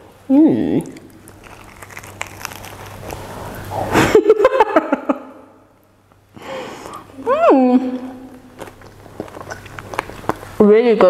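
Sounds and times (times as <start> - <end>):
chewing crunchy sandwich: 0.8 - 4.1, 8.2 - 10.6.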